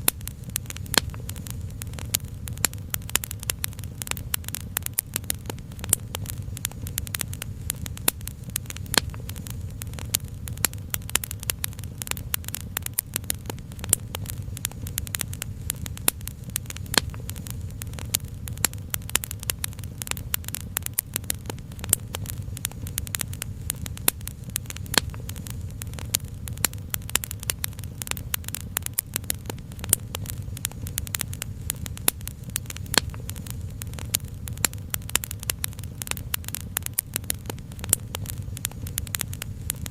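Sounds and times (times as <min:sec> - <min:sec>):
low rumble: 0:00.0 - 0:20.6
wood fire crackling: 0:00.0 - 0:39.9.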